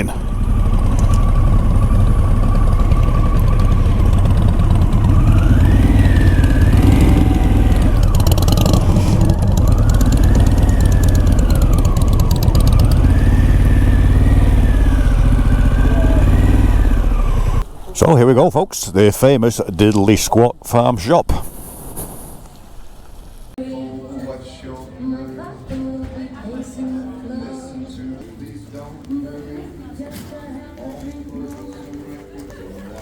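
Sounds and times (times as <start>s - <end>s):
emergency vehicle siren wailing: 0.0s - 17.6s
motorcycle engine at low revs: 0.0s - 17.8s.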